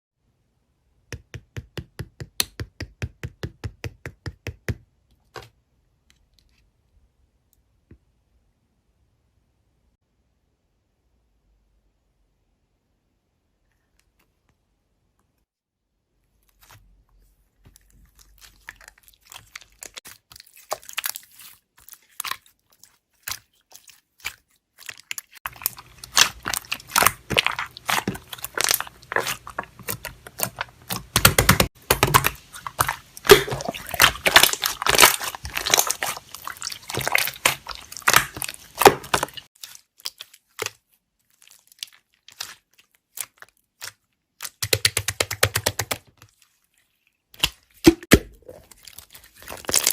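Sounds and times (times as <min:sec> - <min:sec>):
slime crackling and popping: 0:18.3 - 0:45.8, 0:47.4 - 0:49.9.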